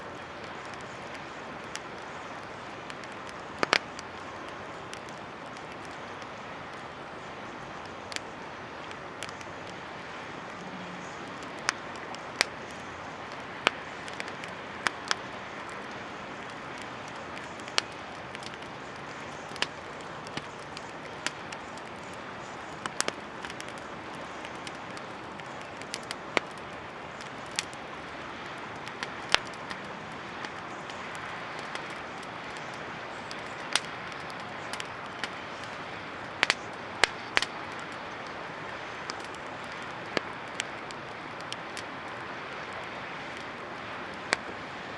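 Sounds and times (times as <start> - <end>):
campfire crackling: 0.0 - 44.9
steady fire hiss: 0.0 - 44.9
sharp fire pops: 10.4 - 42.0.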